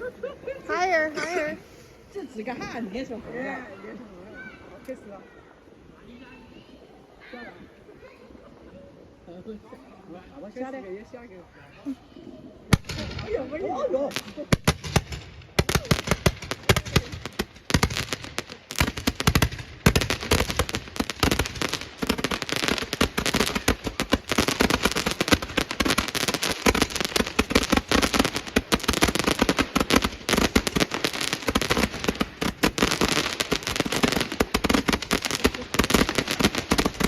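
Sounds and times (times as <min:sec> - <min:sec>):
fireworks and firecrackers: 0:12.7 - 0:37.0.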